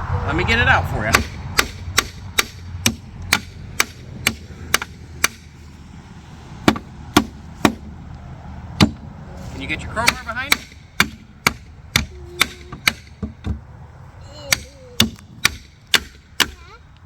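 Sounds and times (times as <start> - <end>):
hammer striking bolts: 1.1 - 5.6, 6.6 - 7.9, 8.8 - 9.1, 10.0 - 13.6, 14.5 - 16.6.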